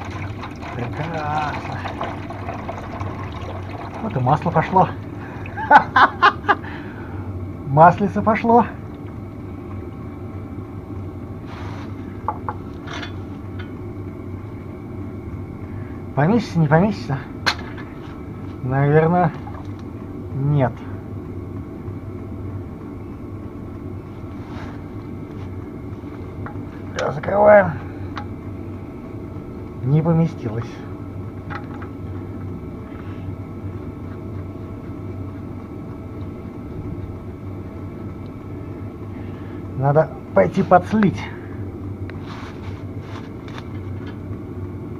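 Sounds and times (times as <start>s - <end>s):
oil draining into container: 0.0s - 5.6s, 19.3s - 19.8s
steady mechanical hum: 0.0s - 44.9s.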